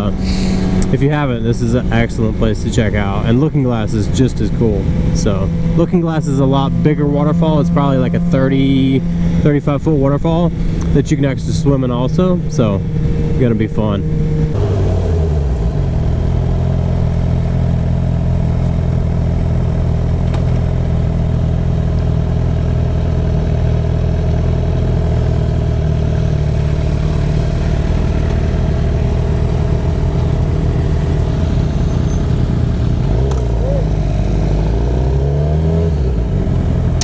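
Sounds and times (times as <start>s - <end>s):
motorcycle engine at low revs: 0.0s - 37.0s.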